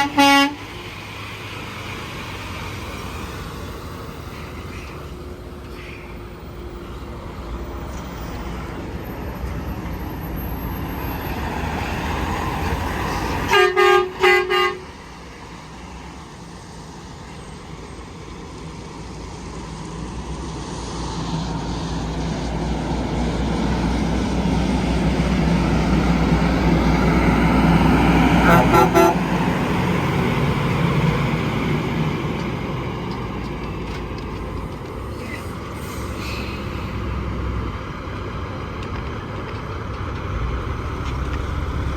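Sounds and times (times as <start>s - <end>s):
vehicle horn blasts: 0.0s - 0.6s, 13.5s - 14.8s, 28.4s - 29.3s
heavy vehicle passing: 0.0s - 41.9s
highway traffic noise: 0.0s - 41.9s.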